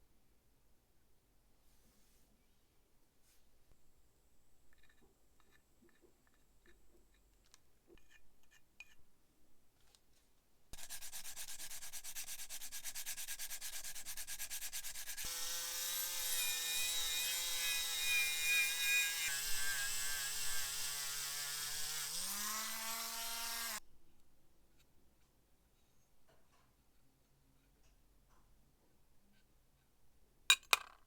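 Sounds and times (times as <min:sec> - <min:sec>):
small electric motor whine: 0:15.2 - 0:23.8.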